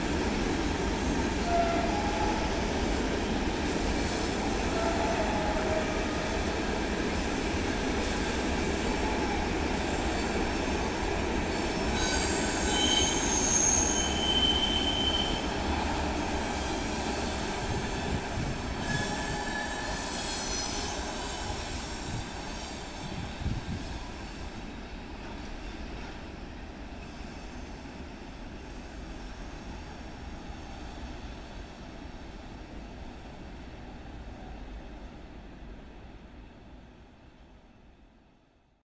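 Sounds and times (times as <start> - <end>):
train rolling on rails: 0.0 - 38.6
train wheels squealing: 11.5 - 15.7, 16.4 - 24.6, 27.0 - 28.0.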